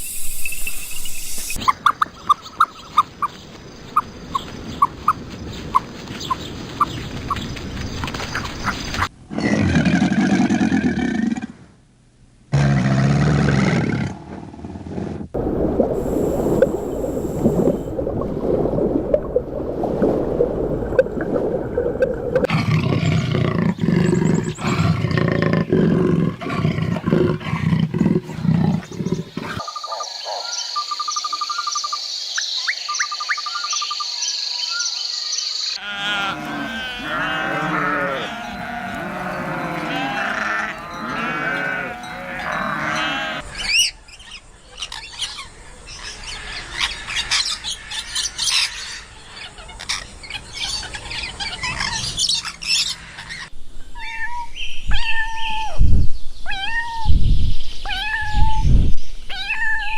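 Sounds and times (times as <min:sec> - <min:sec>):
high chirps: 0:00.0 - 0:01.8
low rough animal calls: 0:35.8 - 0:43.5.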